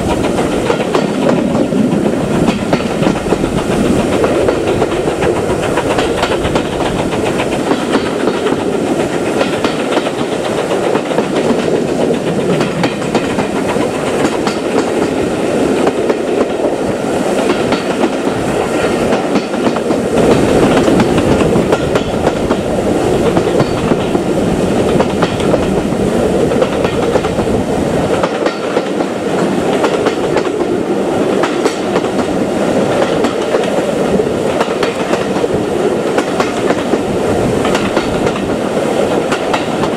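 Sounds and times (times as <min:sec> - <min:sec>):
train wheels clickety-clack: 0:00.0 - 0:39.9.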